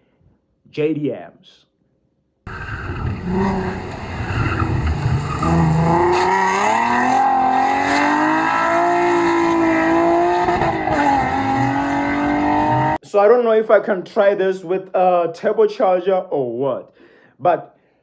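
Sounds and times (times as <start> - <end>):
car engine revving: 2.5 - 13.0.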